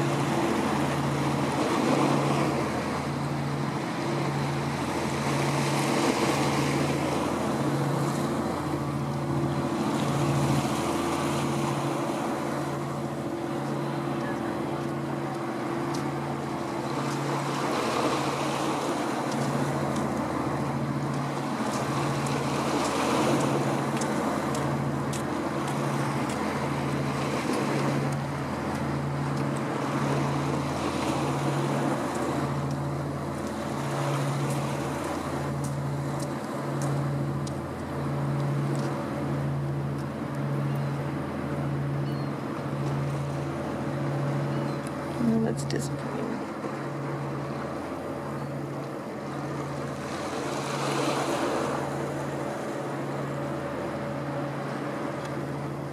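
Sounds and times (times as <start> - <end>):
boat engine throbbing drone: 0.0 - 55.9
water noise: 0.0 - 55.9
wind: 0.0 - 55.9
faint steady higher tone: 40.4 - 42.5, 44.3 - 45.7.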